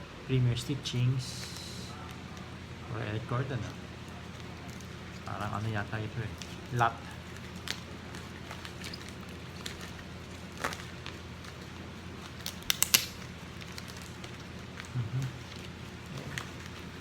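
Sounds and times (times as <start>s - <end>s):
steady low hum: 0.0s - 17.0s
plastic card sleeves crackling: 4.0s - 17.0s.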